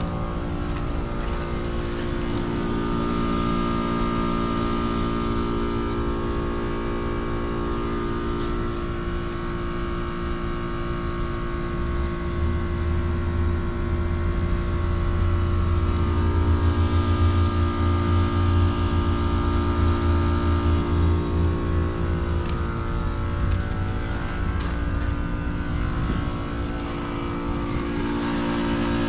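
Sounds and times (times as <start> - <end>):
deep fluttering rumble: 0.0 - 3.6, 20.3 - 29.0
heat pump humming: 0.0 - 29.0.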